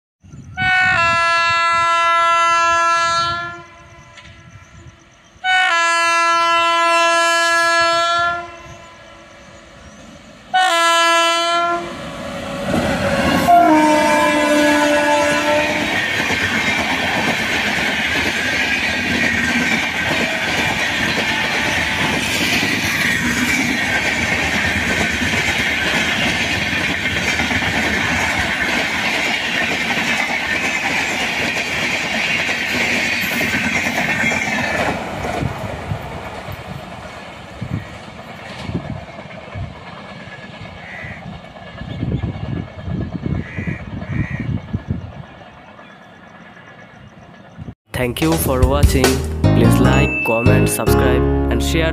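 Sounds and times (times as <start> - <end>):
train wheels roaring on rails: 0.6 - 47.8.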